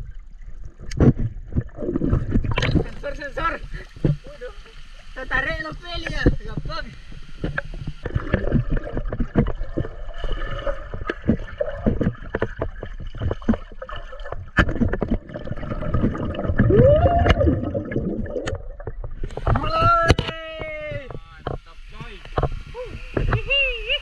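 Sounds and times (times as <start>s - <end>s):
water sloshing and gurgling: 0.0s - 24.0s.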